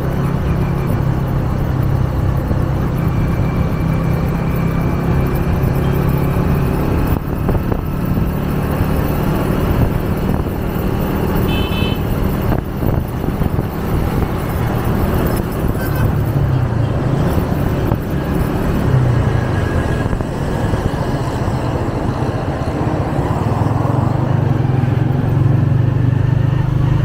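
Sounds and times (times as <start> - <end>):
motorcycle engine running: 0.0 - 27.0
wind and road noise: 0.0 - 27.0
short horn toot: 11.5 - 12.1.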